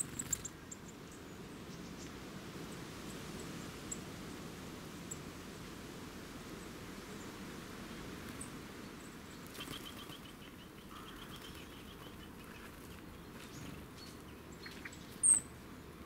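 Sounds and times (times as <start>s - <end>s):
small birds calling: 0.0s - 2.2s, 8.4s - 15.7s.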